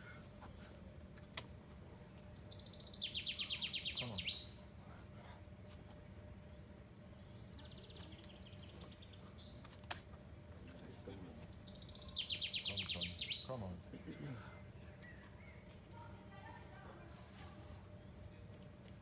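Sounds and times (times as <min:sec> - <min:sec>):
songbird trilling: 0:02.2 - 0:04.6, 0:11.3 - 0:13.7.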